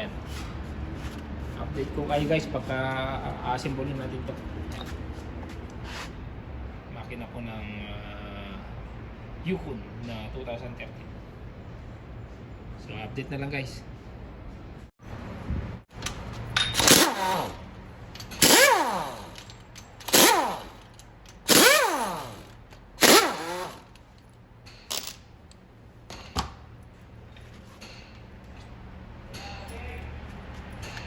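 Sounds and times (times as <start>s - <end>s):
power tool spinning down: 16.8s - 17.6s, 18.4s - 20.9s, 21.5s - 23.9s.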